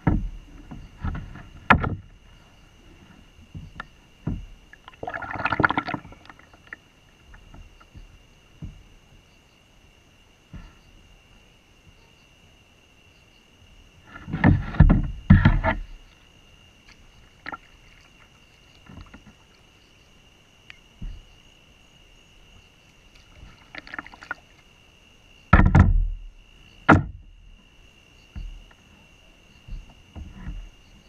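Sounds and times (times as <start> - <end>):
kayak knocks and scrapes: 0.0 - 9.0, 10.5 - 10.9, 14.0 - 16.2, 16.8 - 19.7, 21.0 - 21.4, 23.1 - 24.7, 25.5 - 27.6, 28.3 - 31.0
crickets chirring: 0.0 - 31.0.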